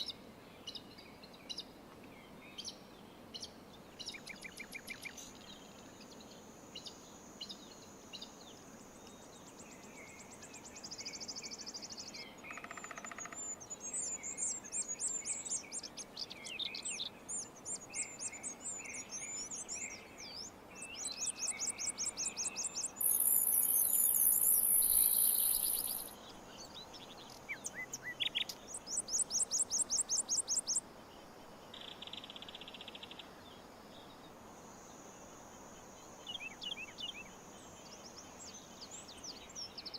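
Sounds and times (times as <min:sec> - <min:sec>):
wild birds singing and chirping: 0:00.0 - 0:39.9
high buzzing bird trill: 0:21.3 - 0:26.2.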